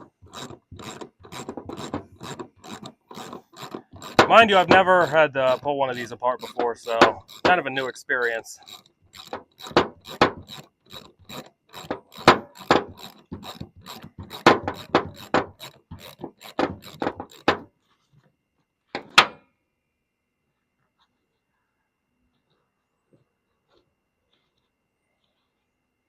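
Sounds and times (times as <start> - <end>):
ratchet wrench clicking: 0.3 - 17.6.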